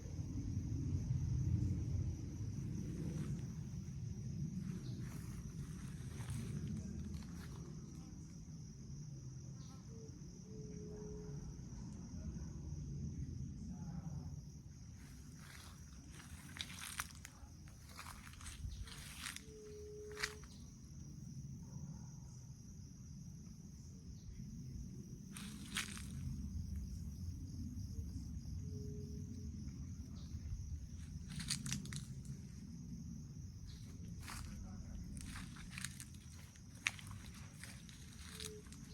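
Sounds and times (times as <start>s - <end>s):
low rumble: 0.0s - 8.6s, 24.2s - 38.9s
crickets trilling: 0.0s - 38.9s.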